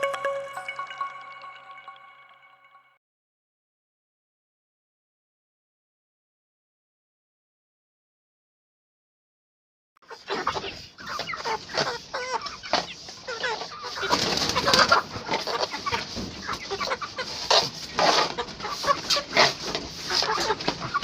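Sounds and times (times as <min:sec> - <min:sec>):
chickens clucking: 0:10.1 - 0:21.0.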